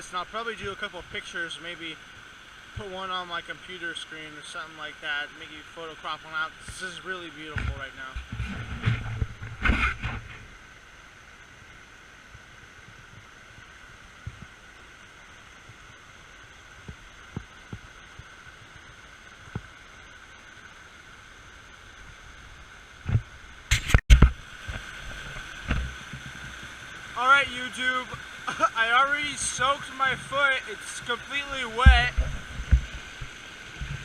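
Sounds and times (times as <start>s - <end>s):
creek water over rocks: 0.0s - 34.0s.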